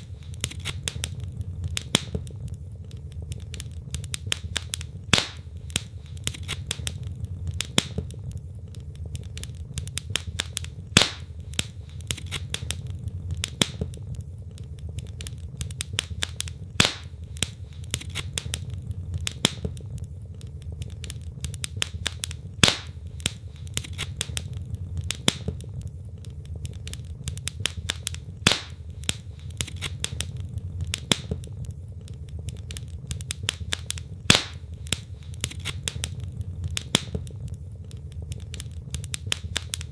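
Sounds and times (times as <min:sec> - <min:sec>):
loud fire pop: 0:00.0 - 0:02.4, 0:04.2 - 0:08.2, 0:10.0 - 0:14.0, 0:15.9 - 0:19.9, 0:21.7 - 0:25.8, 0:27.6 - 0:31.7, 0:33.2 - 0:37.5
logs crackling in fireplace: 0:00.0 - 0:39.9
low rumble of flame: 0:00.0 - 0:39.9.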